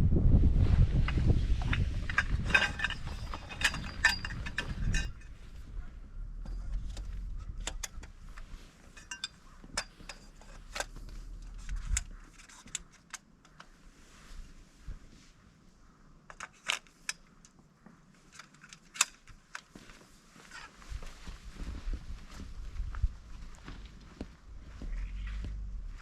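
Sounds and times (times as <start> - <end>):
low rumble: 0.0 - 8.7, 21.8 - 26.0
metallic clinks and jangles: 2.1 - 5.5, 8.9 - 10.9.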